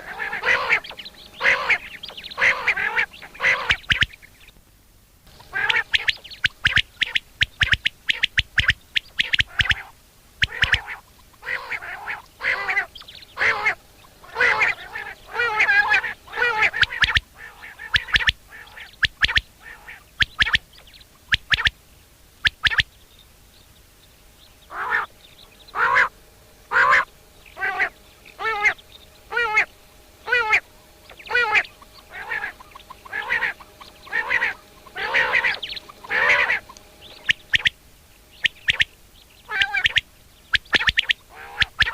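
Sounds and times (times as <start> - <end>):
quail calling: 0.0 - 4.5, 5.3 - 21.8, 22.4 - 23.0, 24.6 - 41.9.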